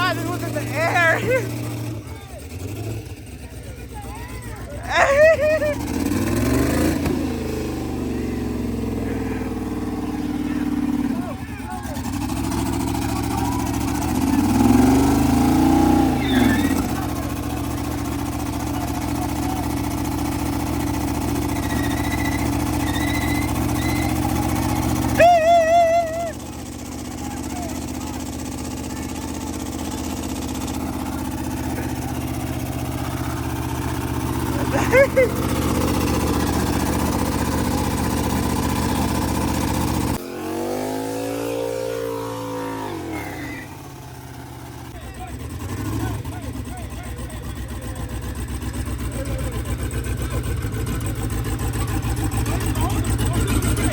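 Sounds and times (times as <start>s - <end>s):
car engine idling: 0.0s - 53.9s
faint high whistle: 21.6s - 24.2s.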